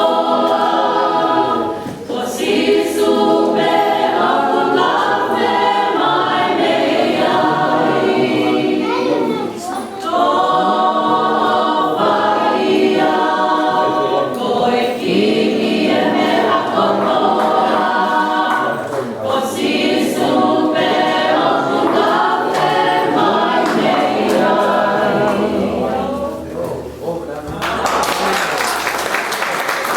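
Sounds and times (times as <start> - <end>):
vocal group singing gospel: 0.0 - 29.2.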